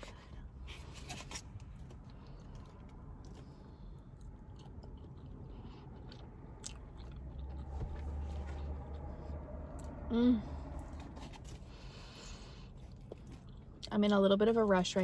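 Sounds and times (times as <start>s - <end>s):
person chewing food: 1.6s - 10.0s, 10.8s - 13.9s.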